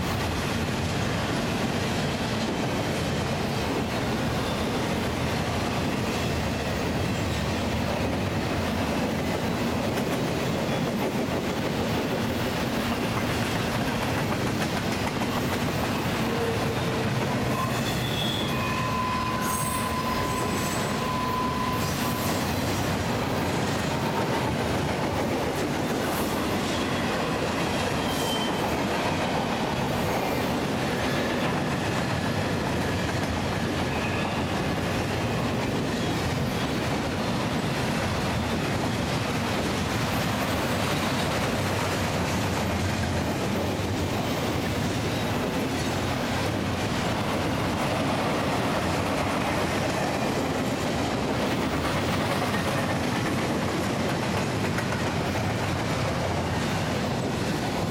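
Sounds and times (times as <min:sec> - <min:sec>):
freight wheels clattering on rail: 0:00.0 - 0:18.6, 0:21.9 - 0:57.9
faint wheel squeal: 0:17.5 - 0:22.6, 0:28.0 - 0:28.6.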